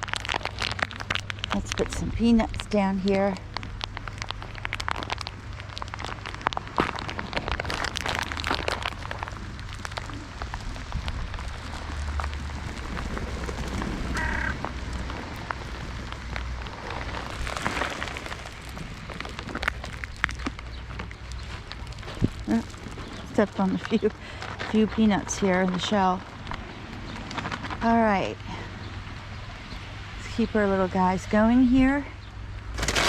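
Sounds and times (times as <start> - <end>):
rain falling: 0.0 - 24.5
short bird call: 14.1 - 14.6.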